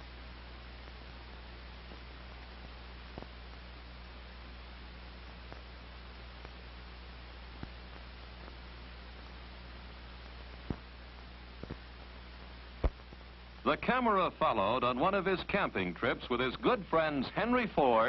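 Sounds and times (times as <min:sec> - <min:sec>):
film soundtrack hiss: 0:00.0 - 0:18.0
low mains hum: 0:00.0 - 0:18.0
faint clicks and pops: 0:01.9 - 0:03.6, 0:05.4 - 0:06.6, 0:07.6 - 0:08.6, 0:09.2 - 0:11.0, 0:11.6 - 0:13.3.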